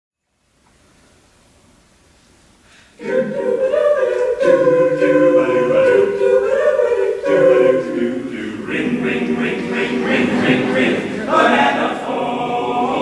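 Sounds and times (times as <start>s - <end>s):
faint hiss: 0.2s - 13.0s
choir singing a cappella: 3.0s - 13.0s.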